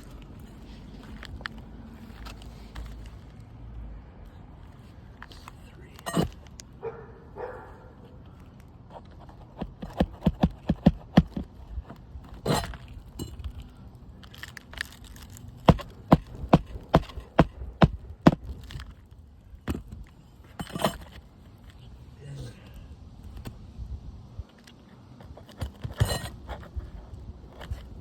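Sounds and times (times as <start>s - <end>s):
hammer driving nails: 9.6s - 11.5s, 15.7s - 18.6s.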